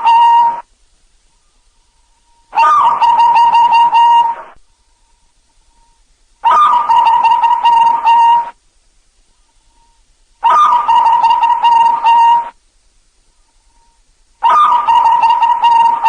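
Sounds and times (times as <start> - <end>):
dove cooing: 0.0 - 0.7, 2.6 - 4.6, 6.4 - 8.6, 9.7 - 12.6, 13.7 - 16.0.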